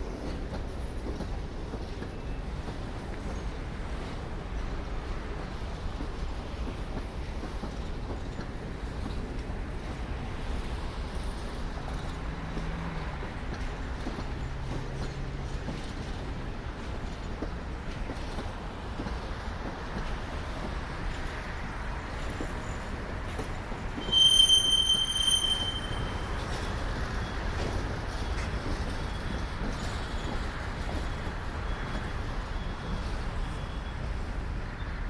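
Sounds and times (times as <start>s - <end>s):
train wheels rumbling on rails: 0.0s - 35.0s
wheel flange squealing: 24.0s - 26.8s.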